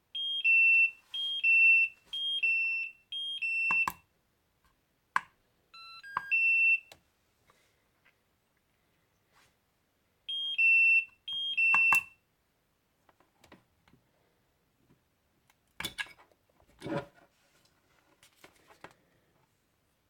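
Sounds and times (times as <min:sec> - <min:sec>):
battery charger two-tone beeps: 0:00.2 - 0:04.0, 0:05.8 - 0:06.9, 0:10.3 - 0:12.2.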